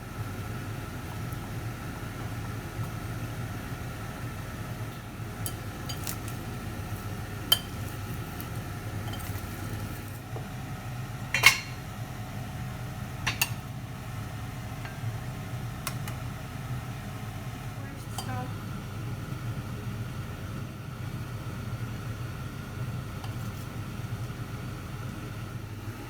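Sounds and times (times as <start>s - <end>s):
dishes and utensils clinking: 9.0s - 9.5s, 11.4s - 11.8s, 13.3s - 13.6s.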